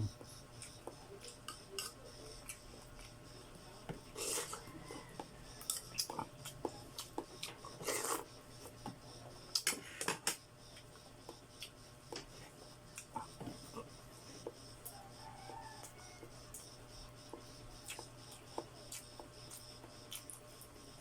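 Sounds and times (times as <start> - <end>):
wet chewing clicks and smacks: 17.3 - 20.4.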